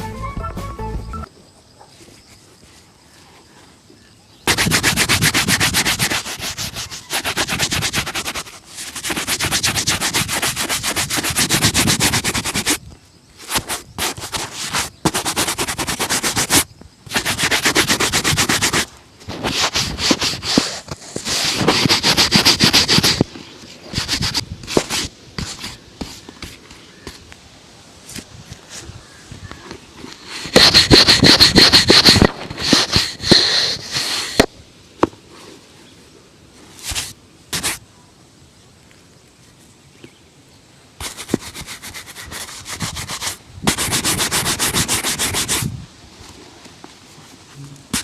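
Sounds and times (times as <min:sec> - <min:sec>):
brush scrubbing leather shoe: 0:04.5 - 0:12.8, 0:13.4 - 0:23.3, 0:23.9 - 0:26.6, 0:30.2 - 0:34.4, 0:36.8 - 0:37.8, 0:41.0 - 0:45.7.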